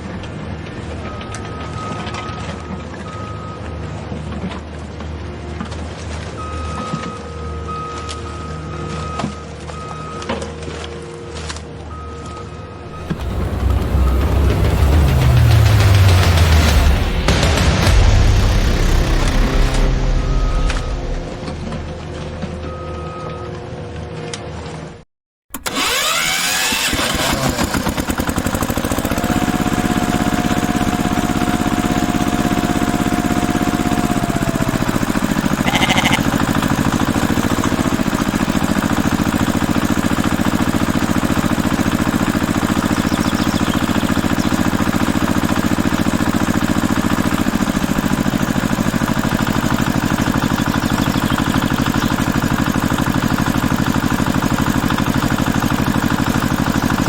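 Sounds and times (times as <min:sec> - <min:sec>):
small motor running: 0:12.9 - 0:16.9, 0:25.6 - 0:57.0
thin whine: 0:12.9 - 0:23.0.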